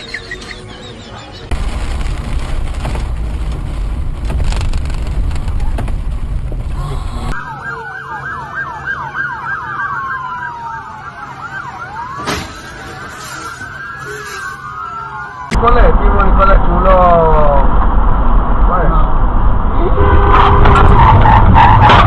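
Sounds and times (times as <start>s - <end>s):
road and wind noise: 0.0s - 22.0s
emergency vehicle sirens: 7.1s - 16.4s.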